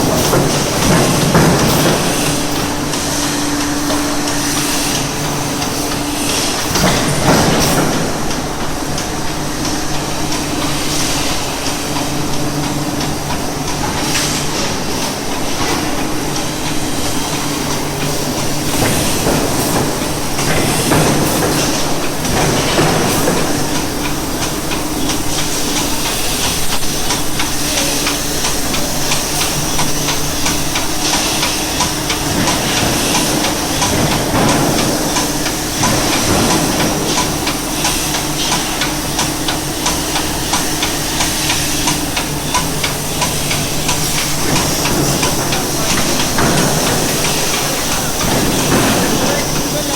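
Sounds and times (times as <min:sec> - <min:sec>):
air hissing: 0:00.0 - 0:49.9.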